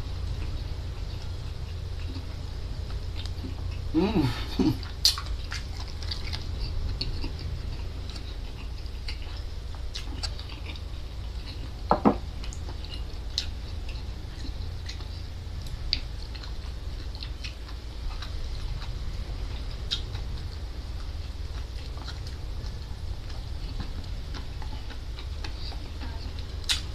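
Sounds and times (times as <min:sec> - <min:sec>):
steady low hum: 0:00.0 - 0:26.9
chewing with wet clicks: 0:00.1 - 0:26.9
person humming briefly: 0:03.9 - 0:04.8.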